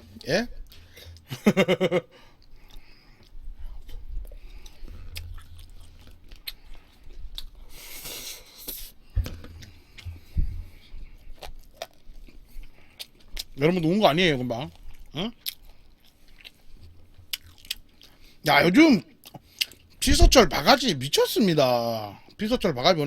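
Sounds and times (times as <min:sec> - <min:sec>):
chewing and biting food: 0:02.4 - 0:07.9, 0:09.6 - 0:13.6, 0:14.6 - 0:18.4.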